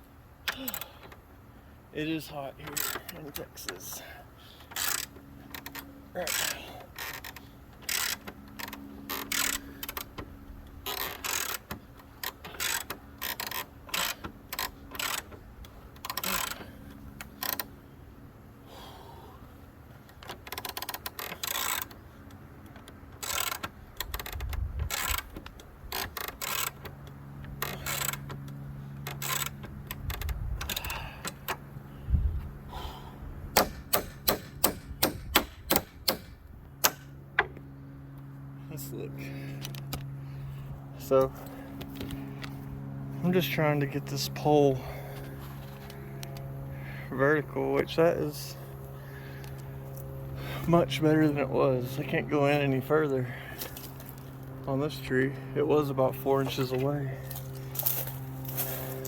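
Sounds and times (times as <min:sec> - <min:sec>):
steady low hum: 0:00.0 - 0:59.0
ratchet wrench clicking: 0:04.7 - 0:10.1, 0:10.8 - 0:15.3, 0:20.5 - 0:22.0, 0:23.2 - 0:26.9, 0:27.5 - 0:28.4, 0:29.0 - 0:31.6.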